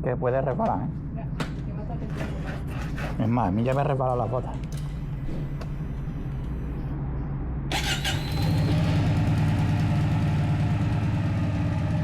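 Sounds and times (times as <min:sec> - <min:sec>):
motorcycle engine idling: 0:07.8 - 0:12.0.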